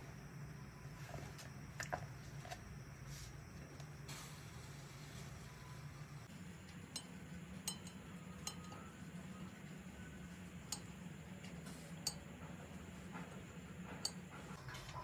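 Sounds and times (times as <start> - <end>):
low steady hum: 0.0 - 15.0
dishes and utensils clinking: 7.7 - 8.9.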